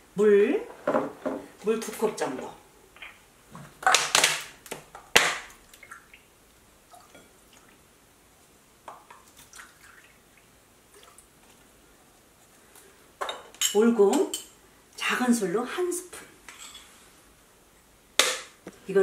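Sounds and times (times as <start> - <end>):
water pouring and trickling: 6.9 - 7.8, 9.0 - 11.6.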